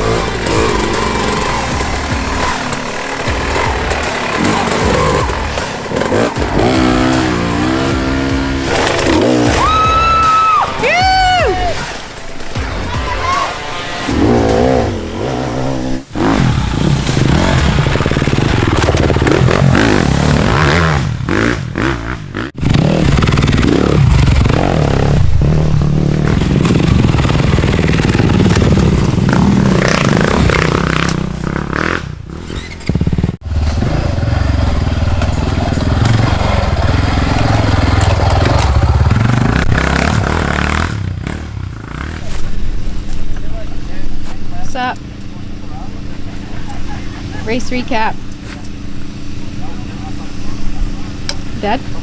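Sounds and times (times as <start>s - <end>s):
dirt bike engines revving: 0.0s - 52.0s
clatter and scraping: 8.6s - 9.5s, 16.9s - 20.4s.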